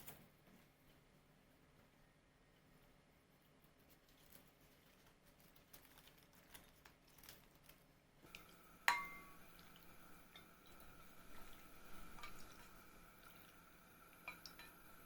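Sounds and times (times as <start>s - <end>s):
faint steady tone: 8.2s - 15.0s
dishware clinking: 8.9s - 9.4s.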